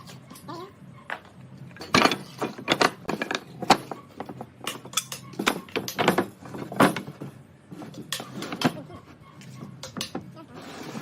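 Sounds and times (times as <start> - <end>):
wooden parts knocking and clattering: 1.2 - 8.9.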